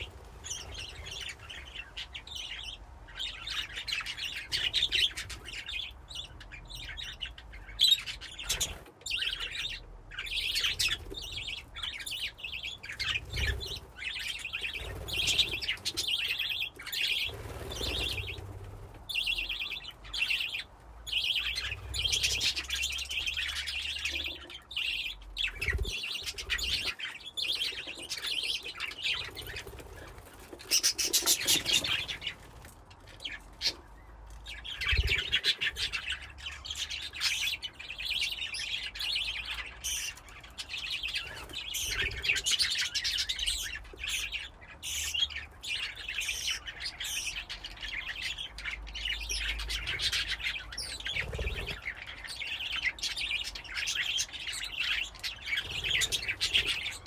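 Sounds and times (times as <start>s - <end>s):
budgies chirping and chattering: 0.0s - 57.0s.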